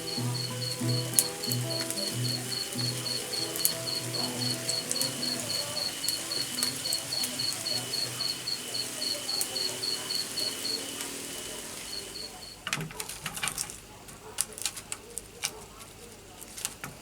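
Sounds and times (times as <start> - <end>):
soft background music: 0.0 - 10.2
insect chirping: 0.0 - 12.6.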